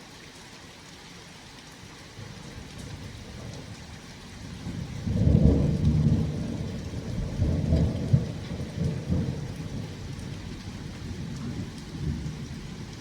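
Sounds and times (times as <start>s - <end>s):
steady rain: 0.0s - 13.0s
thunder rumbling: 4.4s - 12.9s.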